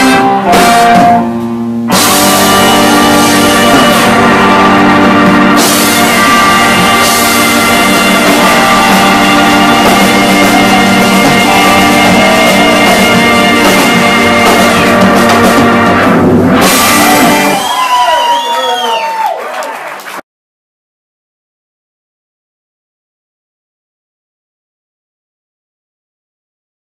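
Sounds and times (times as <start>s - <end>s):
electric guitar: 0.0s - 18.0s
live rock band playing: 0.0s - 18.5s.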